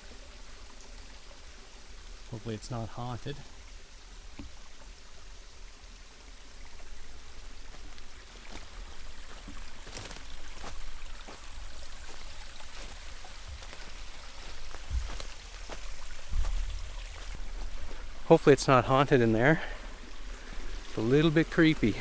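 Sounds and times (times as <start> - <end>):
light rain ticks and taps: 0.0 - 22.0
river rushing: 7.7 - 22.0.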